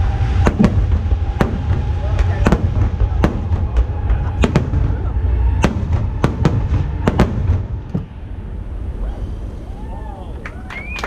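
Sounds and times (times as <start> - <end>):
fireworks bursting: 0.0 - 8.3
low rumble: 0.0 - 11.0.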